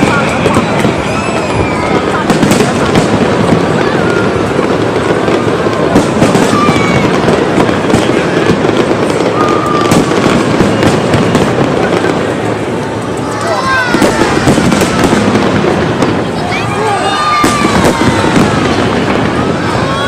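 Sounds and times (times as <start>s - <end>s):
crowd voices: 0.0s - 20.0s
firework whistles: 0.0s - 20.0s
fireworks crackling: 0.0s - 20.0s.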